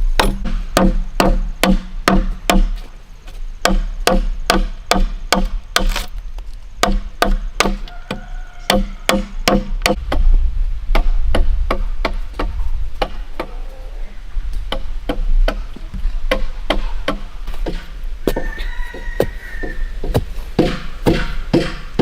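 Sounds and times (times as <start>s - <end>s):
bladed tool chopping wood: 3.6s - 6.1s, 20.0s - 22.0s.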